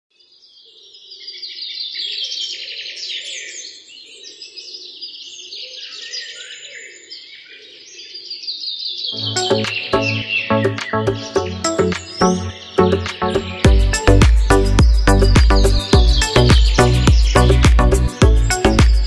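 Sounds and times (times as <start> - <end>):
small birds chirping together: 0.1 - 19.0.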